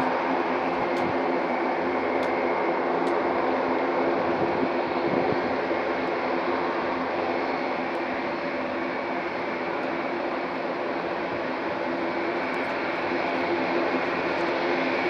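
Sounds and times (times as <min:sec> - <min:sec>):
turboprop aircraft engines droning: 0:00.0 - 0:15.0.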